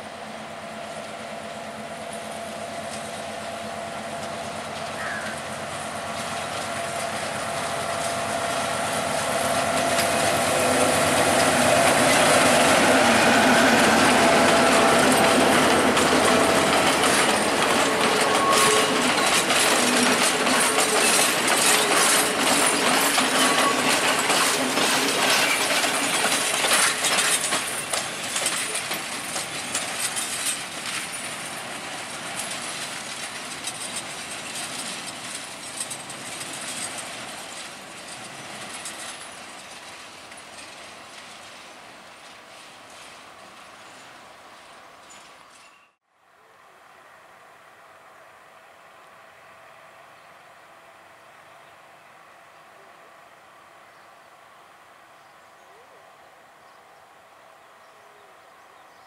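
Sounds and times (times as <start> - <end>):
diesel locomotive engine hum: 0.0 - 59.0
wheels clicking over rail joints: 0.9 - 46.0.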